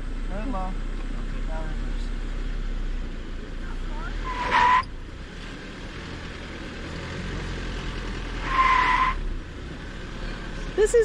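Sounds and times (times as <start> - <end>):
engine running low: 0.0 - 11.0
tyres spinning and squealing: 3.8 - 11.0.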